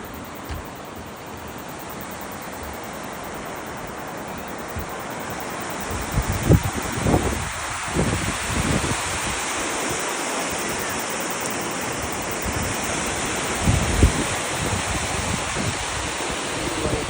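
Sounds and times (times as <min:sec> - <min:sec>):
steady rushing outdoor noise: 0:00.0 - 0:17.0
wind buffeting microphone: 0:05.9 - 0:09.7, 0:12.4 - 0:17.0.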